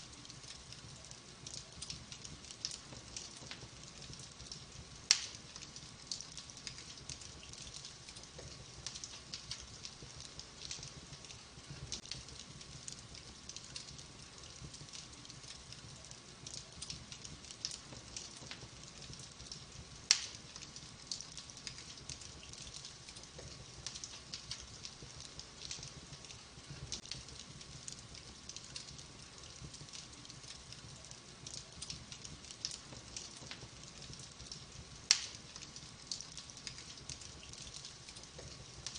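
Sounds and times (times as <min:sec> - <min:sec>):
logs crackling in a fire: 0:00.0 - 0:38.9
loud pop of fire: 0:05.1 - 0:05.4, 0:20.1 - 0:20.4, 0:35.1 - 0:35.4.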